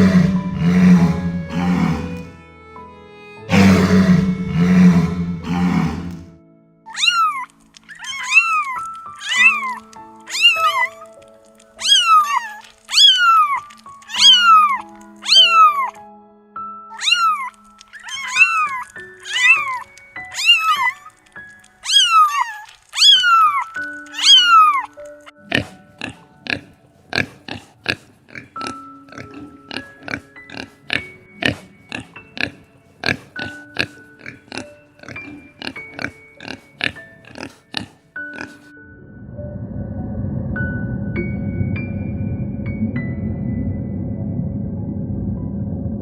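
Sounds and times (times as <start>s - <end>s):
low rough growl: 0.0s - 2.3s, 3.5s - 6.3s, 38.8s - 46.0s
background music with held notes: 0.0s - 46.0s
kitten meowing: 6.9s - 11.0s, 11.8s - 15.9s, 17.0s - 21.0s, 21.8s - 25.0s.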